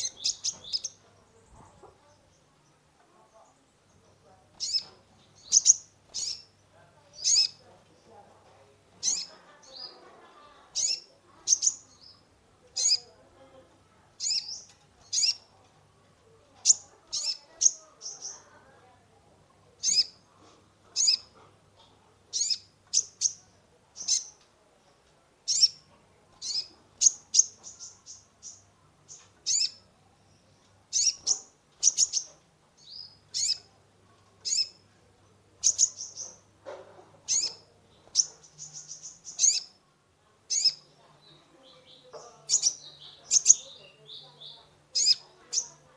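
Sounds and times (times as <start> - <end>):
sunbird chirping: 0.0 - 8.2, 25.5 - 33.8, 34.4 - 35.0, 35.6 - 36.5, 37.3 - 39.8, 40.5 - 45.9.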